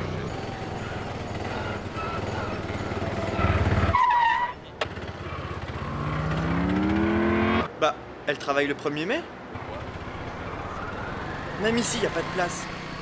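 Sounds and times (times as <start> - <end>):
engine speeding up: 4.9 - 7.7.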